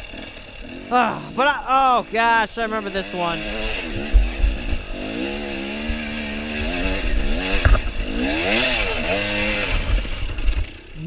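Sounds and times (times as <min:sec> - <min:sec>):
dirt bike engine revving: 0:00.0 - 0:11.0
low rumble and knocks: 0:03.8 - 0:08.6.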